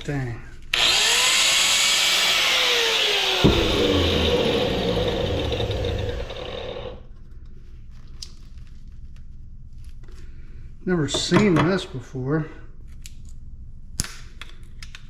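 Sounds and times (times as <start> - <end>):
power tool cutting metal: 0.7 - 7.0
sharp knock: 3.3 - 6.4.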